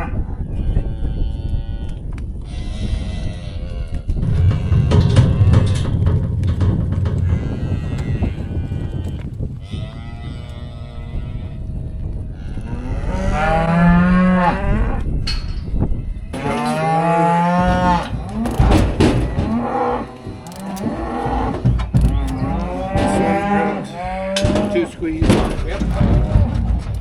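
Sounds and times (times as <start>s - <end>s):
cows mooing: 0.0s - 15.1s, 16.0s - 26.9s
sharp knocks and clatter: 4.2s - 9.4s, 17.7s - 27.0s.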